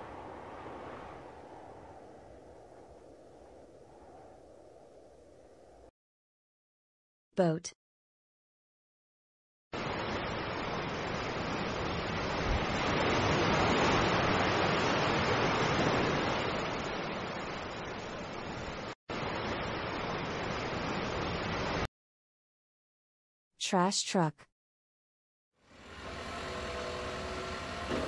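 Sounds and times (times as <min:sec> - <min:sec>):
sea water rushing: 0:09.8 - 0:21.9.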